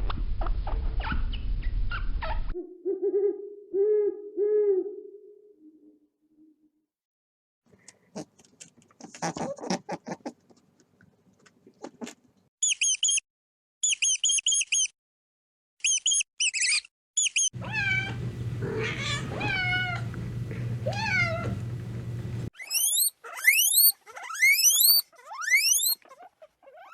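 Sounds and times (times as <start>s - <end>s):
rapid high-pitched chirping: 12.6s - 13.2s, 13.8s - 14.9s, 15.8s - 17.5s, 22.6s - 26.0s
rising squeaky chirps: 12.6s - 13.2s, 13.8s - 14.9s, 15.8s - 17.6s, 22.6s - 26.0s
kitten meowing: 17.6s - 20.1s, 20.8s - 21.6s
steady low hum: 17.6s - 22.5s.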